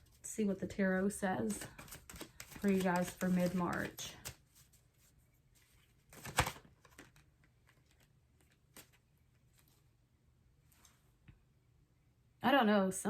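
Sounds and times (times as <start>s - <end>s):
cards being shuffled: 1.4s - 9.8s.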